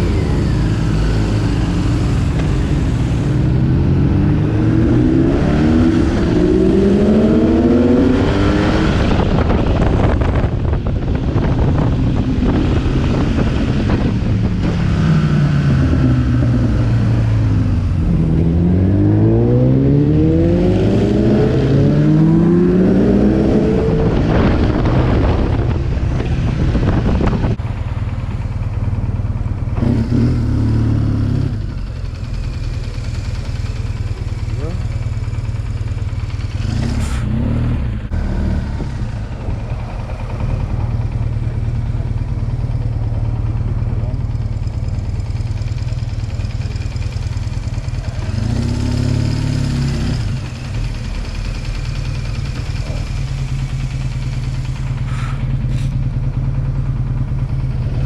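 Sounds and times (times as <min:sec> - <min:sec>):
motorcycle engine accelerating: 0:00.0 - 0:58.0
road and wind noise: 0:00.0 - 0:58.0.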